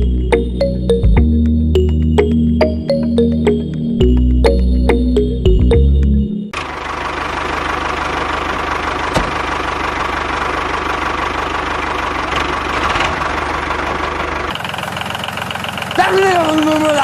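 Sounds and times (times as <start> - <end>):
small engine chugging: 6.6 - 17.0.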